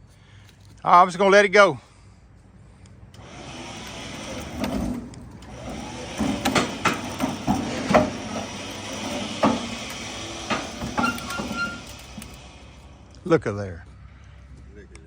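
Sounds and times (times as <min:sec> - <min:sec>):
log rigging creaking: 0:03.2 - 0:12.9
wooden and metal knocks: 0:03.8 - 0:12.4.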